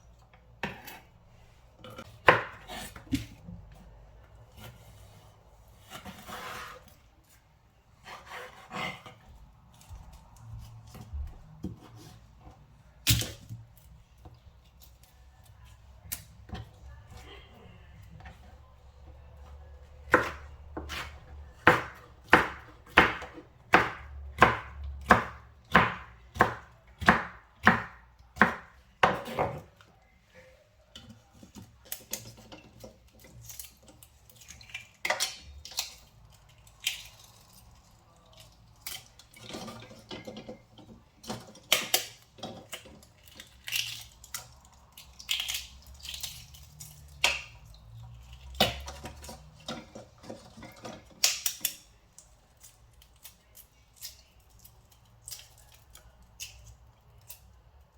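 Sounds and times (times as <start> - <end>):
knife chopping on cutting board: 2.0 - 3.4, 20.1 - 29.7.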